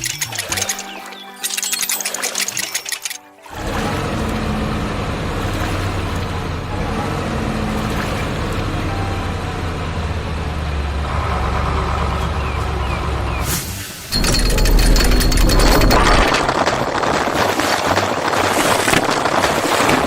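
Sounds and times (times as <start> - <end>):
heavy vehicle engine rumbling: 3.5 - 17.2.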